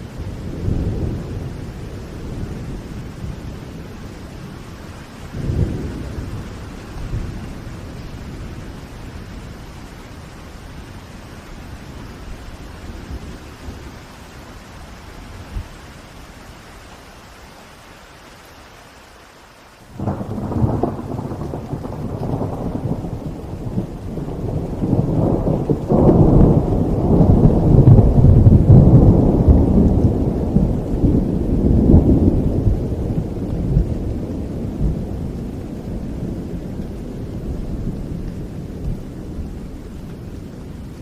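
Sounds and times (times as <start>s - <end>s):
thunder crack and rumble: 0.0s - 9.5s, 20.0s - 41.0s
steady rain: 0.0s - 41.0s.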